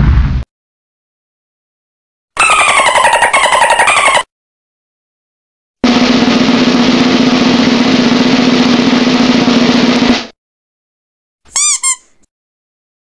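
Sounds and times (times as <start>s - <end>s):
squeaky chirps: 2.4s - 4.3s, 11.5s - 12.3s
drum roll: 5.8s - 10.4s.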